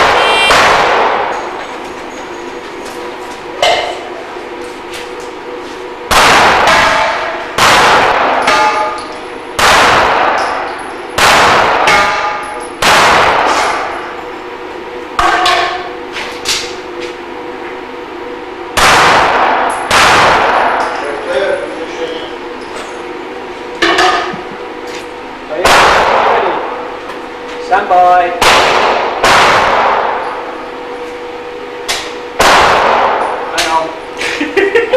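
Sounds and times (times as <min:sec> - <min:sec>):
pistol shots: 0:00.0 - 0:01.5, 0:06.1 - 0:08.9, 0:09.6 - 0:13.9, 0:18.8 - 0:20.9, 0:25.6 - 0:26.6, 0:28.4 - 0:30.3, 0:32.4 - 0:33.4
steel plates ringing: 0:08.3 - 0:09.4, 0:11.9 - 0:12.8, 0:15.2 - 0:16.0.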